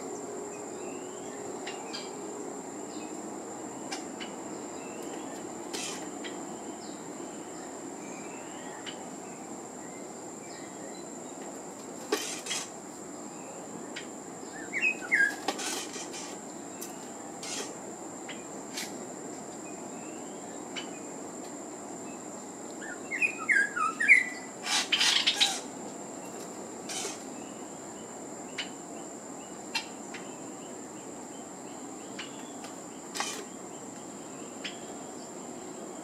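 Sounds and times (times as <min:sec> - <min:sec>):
insect buzz: 0:00.0 - 0:36.0
bird chirping: 0:13.4 - 0:17.7, 0:22.8 - 0:25.7.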